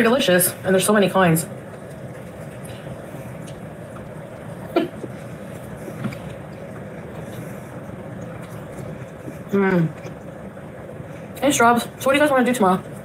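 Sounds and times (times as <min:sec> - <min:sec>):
steady background hum: 0:00.0 - 0:13.0
person chewing: 0:02.4 - 0:10.6.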